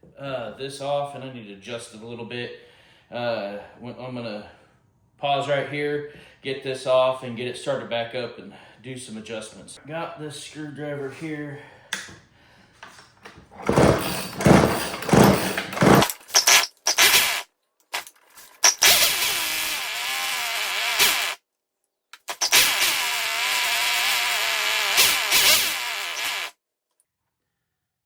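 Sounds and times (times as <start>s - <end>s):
chainsaw engine pull-starting and running: 13.6s - 17.4s, 18.0s - 21.4s, 22.2s - 26.5s.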